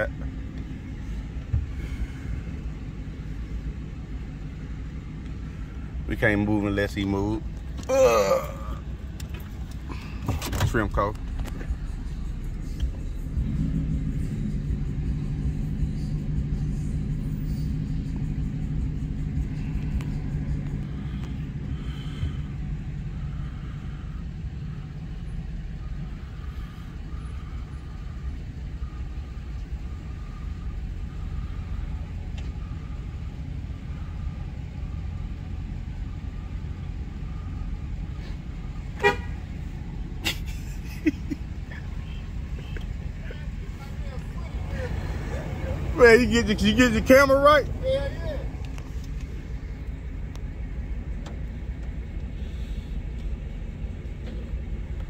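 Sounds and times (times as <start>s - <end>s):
vehicle exhaust rumble: 0.0s - 55.0s
car horn toot: 38.9s - 39.5s.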